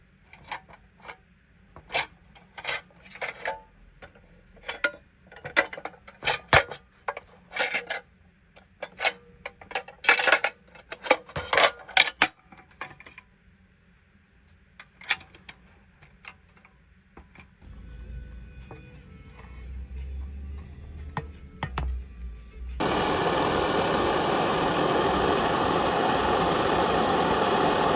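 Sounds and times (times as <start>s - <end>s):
low hum: 17.7s - 27.9s.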